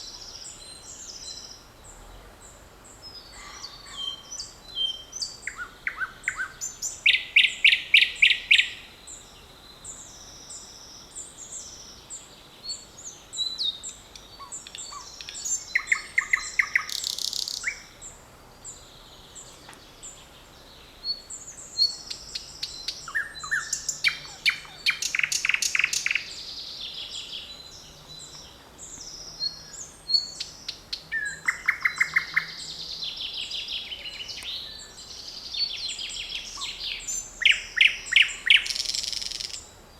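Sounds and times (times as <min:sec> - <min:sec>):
loud bird rapid song phrases: 0:00.0 - 0:09.2, 0:09.8 - 0:39.9
birds chirping and warbling: 0:00.0 - 0:39.9.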